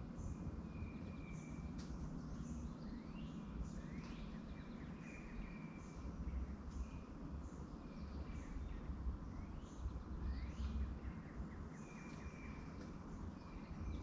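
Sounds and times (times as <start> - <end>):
birds chirping and whistling: 7.9 - 14.0.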